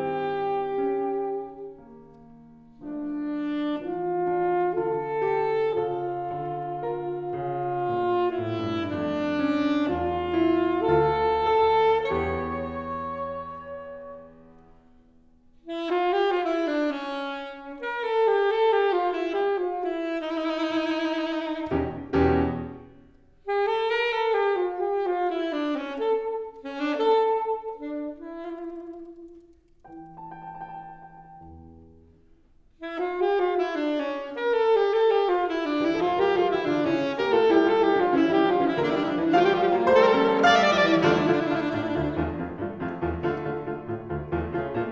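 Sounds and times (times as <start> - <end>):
wind instrument melody: 0.0 - 14.8, 15.6 - 31.6, 32.7 - 44.9
low piano notes: 29.8 - 32.1, 35.8 - 44.9
chamber ensemble playing: 36.5 - 43.3.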